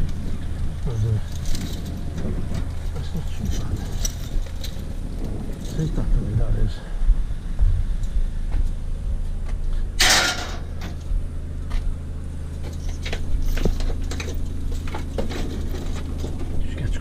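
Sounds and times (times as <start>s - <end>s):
vehicle engine idling: 0.0s - 17.0s
loud metal scrape: 10.0s - 11.0s
scrap metal clicks and knocks: 10.0s - 11.1s, 12.6s - 16.6s.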